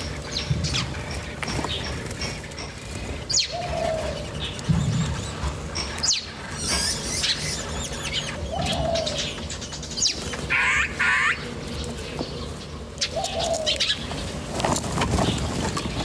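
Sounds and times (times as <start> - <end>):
buzzy bird calls: 0.0 - 16.0
lower falling bird call: 6.0 - 11.8.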